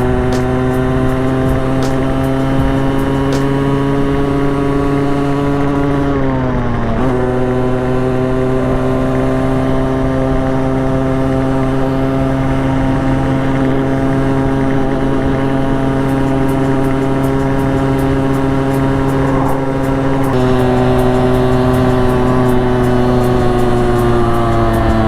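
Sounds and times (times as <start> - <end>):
motorcycle engine running: 0.0 - 25.0
wind rush: 11.6 - 25.0.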